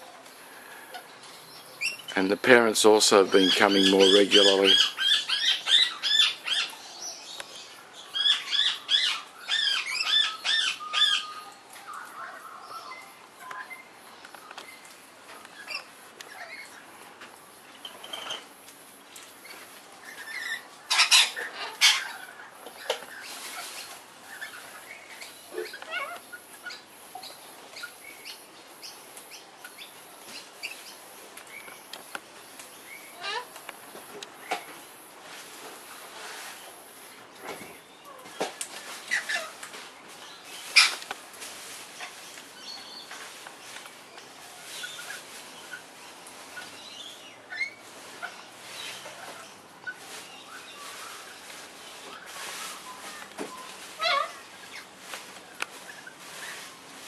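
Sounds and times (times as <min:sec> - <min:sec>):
parrots chirping and squeaking: 0:01.8 - 0:02.1, 0:03.3 - 0:06.8, 0:08.1 - 0:13.9, 0:15.5 - 0:16.9, 0:17.7 - 0:18.6, 0:19.4 - 0:31.8, 0:32.9 - 0:33.6, 0:38.0 - 0:41.1, 0:44.1 - 0:45.9, 0:46.5 - 0:56.8
parrots calling shrilly: 0:03.4 - 0:06.7, 0:08.1 - 0:11.5, 0:20.0 - 0:24.8, 0:25.5 - 0:26.8, 0:33.1 - 0:33.6, 0:39.0 - 0:39.6, 0:40.7 - 0:41.0, 0:53.6 - 0:54.9
faint parrot chatter: 0:25.5 - 0:26.8, 0:33.1 - 0:33.6, 0:53.9 - 0:54.8.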